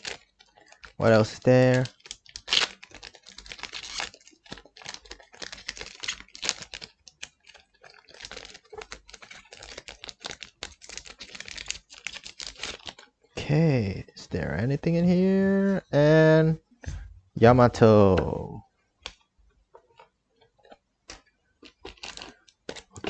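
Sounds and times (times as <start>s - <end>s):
cards and wrappers crinkling: 0.0s - 14.0s, 19.9s - 23.0s.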